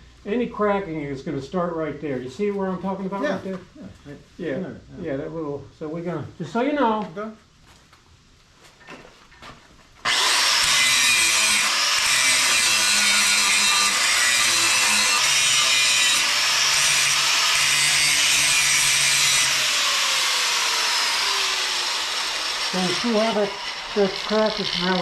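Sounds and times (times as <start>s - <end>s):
power grinder cutting steel: 10.0s - 25.0s.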